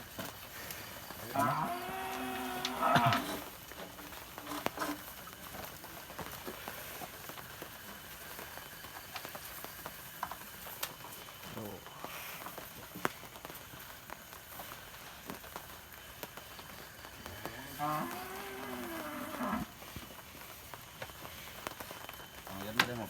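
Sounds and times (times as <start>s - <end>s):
rain pattering: 0.0s - 23.0s.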